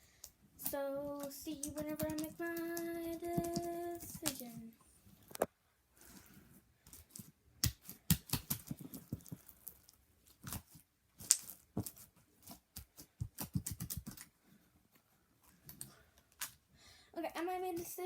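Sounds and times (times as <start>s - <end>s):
slime clicking and popping: 7.6s - 9.8s.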